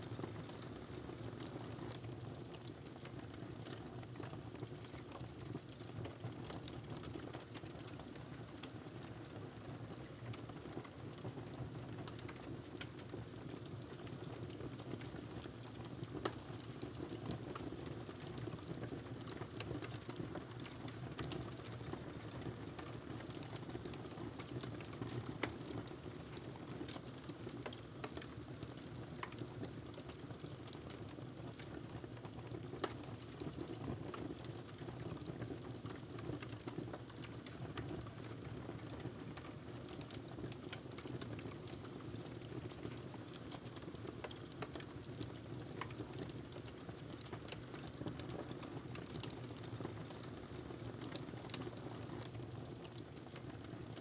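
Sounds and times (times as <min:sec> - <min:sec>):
low rumble of fire: 0:00.2 - 0:54.0
fire snaps and pops: 0:15.0 - 0:30.9, 0:31.6 - 0:53.6.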